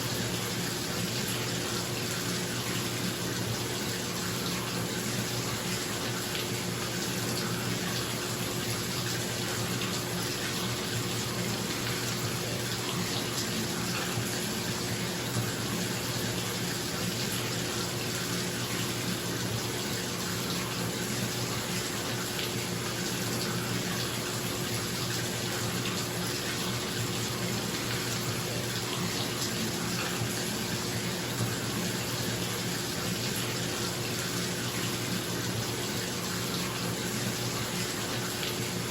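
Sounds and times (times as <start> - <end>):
tap running into bathtub: 19.9 - 38.8.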